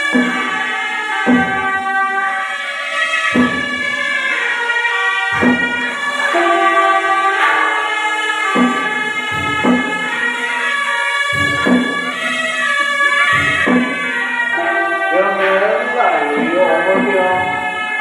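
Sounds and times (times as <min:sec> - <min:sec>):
steady drone: 0:00.0 - 0:18.0
low drum strikes: 0:00.1 - 0:02.0, 0:03.4 - 0:04.0, 0:05.3 - 0:07.8, 0:08.5 - 0:10.4, 0:11.4 - 0:17.9
shrill reedy wind melody: 0:05.3 - 0:07.9.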